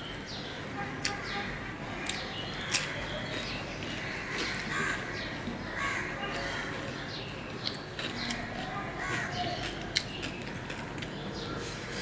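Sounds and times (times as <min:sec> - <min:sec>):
crunching raw cucumber: 0:02.0 - 0:11.2.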